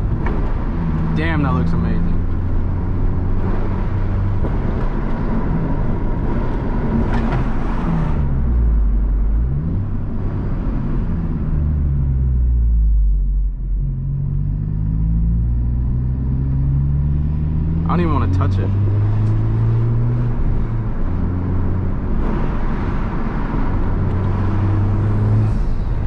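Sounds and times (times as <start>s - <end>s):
car engine from inside cabin: 0.0s - 26.0s.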